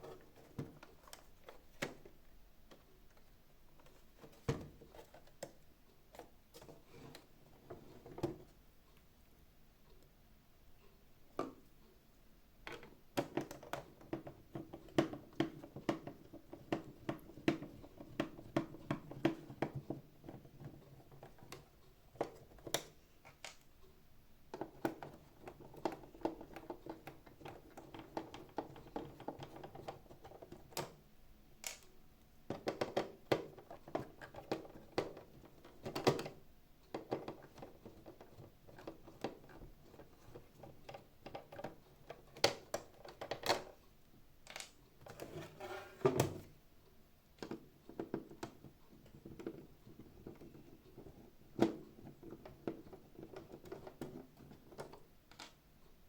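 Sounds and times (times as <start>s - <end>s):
clicks and taps of plastic parts: 12.6s - 23.9s, 24.5s - 31.0s, 31.6s - 43.8s, 44.4s - 46.6s, 47.4s - 55.7s.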